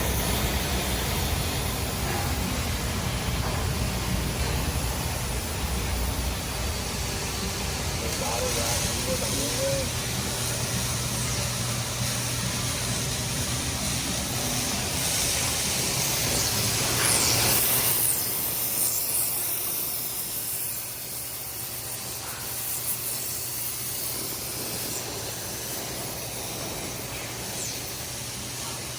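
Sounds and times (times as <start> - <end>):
pipe beveler cutting hiss: 0.0 - 28.9.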